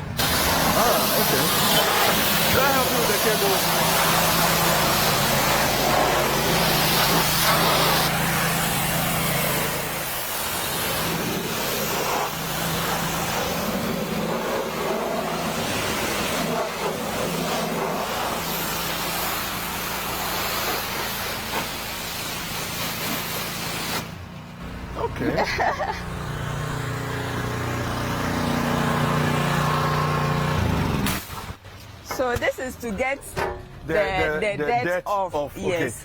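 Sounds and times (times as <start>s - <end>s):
pressure washer spray hiss: 0.1s - 24.2s.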